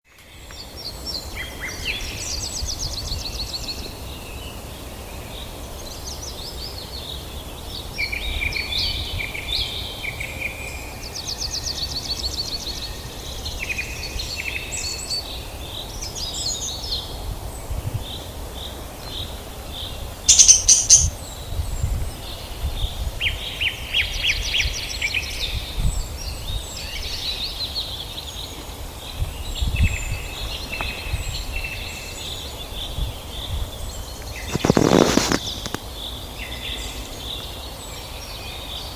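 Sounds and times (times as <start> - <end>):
loud harsh squawk: 20.3 - 21.1
budgerigars chattering and warbling: 20.3 - 21.2.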